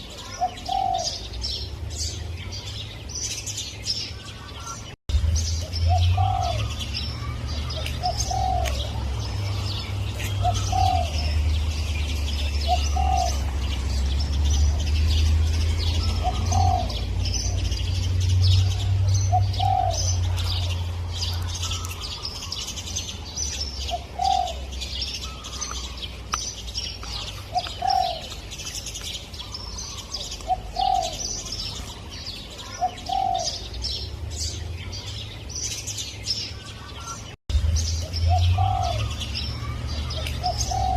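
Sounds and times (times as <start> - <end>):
small birds chirping: 0.0 - 40.9
dove cooing: 0.1 - 1.4, 5.9 - 11.6, 12.3 - 13.7, 15.8 - 17.9, 18.5 - 22.2, 23.8 - 26.0, 27.0 - 28.5, 29.4 - 31.9, 32.6 - 33.7, 38.3 - 40.9.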